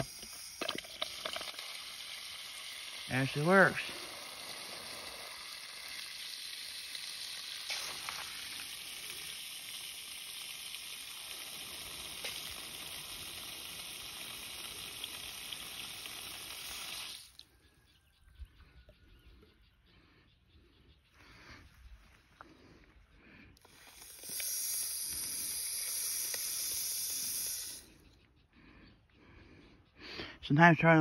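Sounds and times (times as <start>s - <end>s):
water hissing from a spigot: 0.0s - 17.5s, 23.6s - 28.0s.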